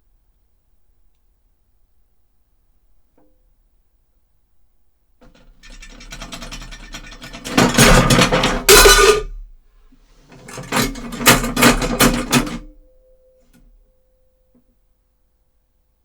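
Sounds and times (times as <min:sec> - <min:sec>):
metallic clattering: 0:05.3 - 0:09.4
short metallic ring: 0:08.0 - 0:09.3.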